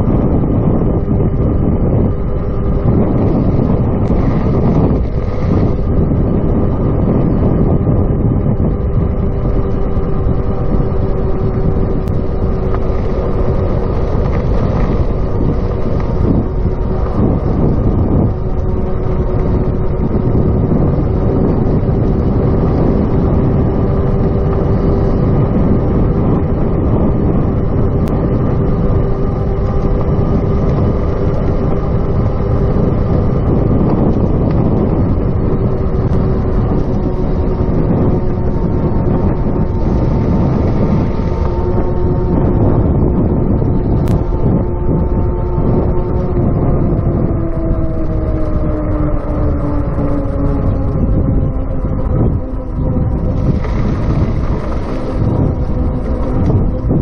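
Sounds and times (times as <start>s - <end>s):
electric bicycle humming: 0.0s - 57.0s
wind buffeting microphone: 0.0s - 57.0s.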